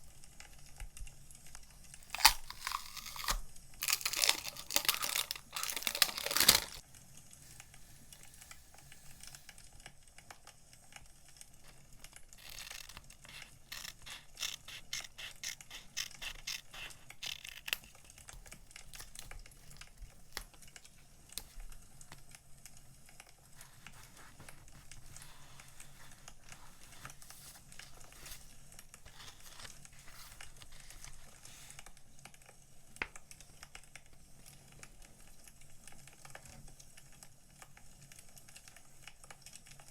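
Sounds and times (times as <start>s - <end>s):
paper and plastic rustling: 2.0s - 6.8s, 11.6s - 22.4s, 23.1s - 32.0s.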